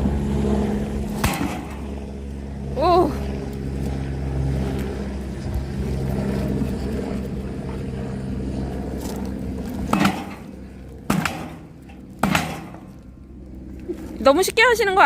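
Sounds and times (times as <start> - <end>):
engine-like hum: 0.0 - 15.0
axe splitting firewood: 1.1 - 1.9, 9.0 - 13.0.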